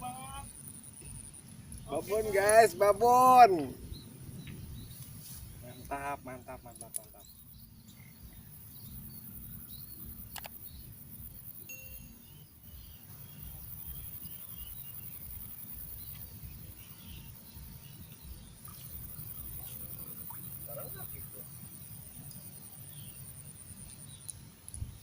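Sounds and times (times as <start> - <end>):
faint chirps: 0.0 - 25.0
steady high hiss: 0.0 - 25.0
wind rumble on microphone: 3.6 - 5.7, 24.3 - 25.0.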